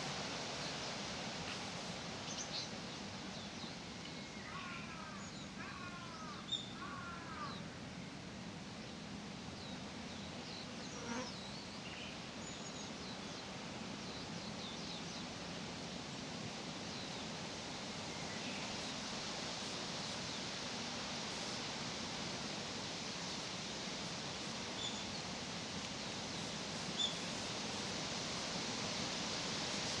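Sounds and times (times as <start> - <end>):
steady hiss: 0.0 - 30.0
insect buzzing: 10.8 - 11.4.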